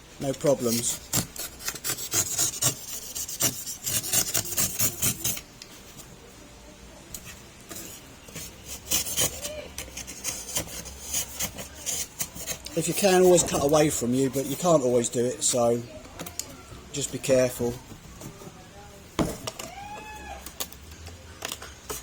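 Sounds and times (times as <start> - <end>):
knife scraping and cutting: 0.6 - 5.5, 7.2 - 14.8.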